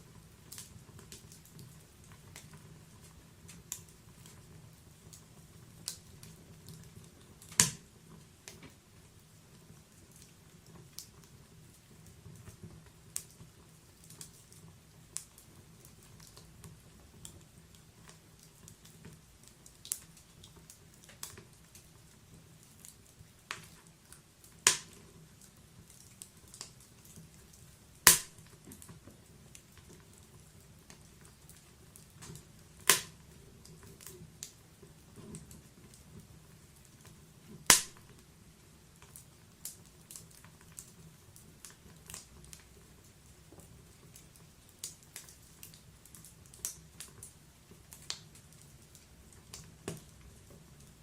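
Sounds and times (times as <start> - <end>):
fire crackling: 0.0 - 51.0
sharp loud pops: 28.1 - 28.4, 37.7 - 38.0.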